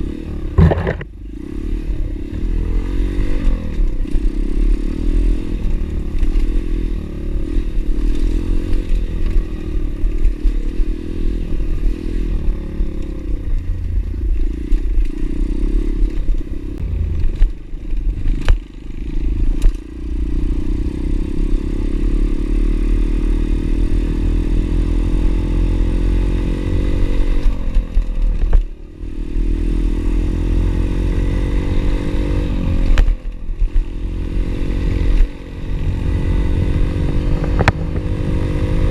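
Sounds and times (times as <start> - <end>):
pit bike engine revving: 0.0 - 13.4, 29.0 - 38.9.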